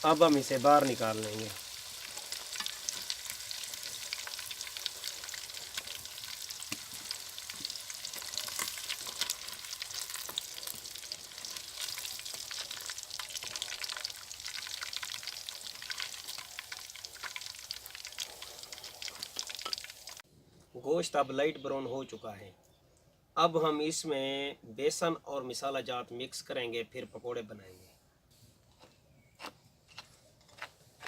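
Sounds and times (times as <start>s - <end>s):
chicken frying in hot oil: 0.0s - 20.2s.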